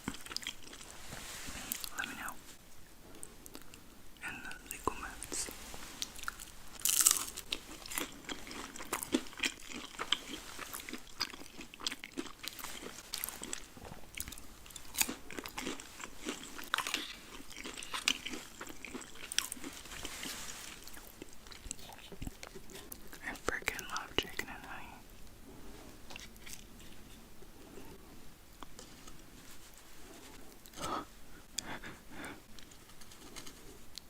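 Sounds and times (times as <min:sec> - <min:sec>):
crisp crunching and chewing: 0:00.0 - 0:01.0, 0:06.0 - 0:24.9, 0:26.1 - 0:27.1, 0:32.5 - 0:34.0.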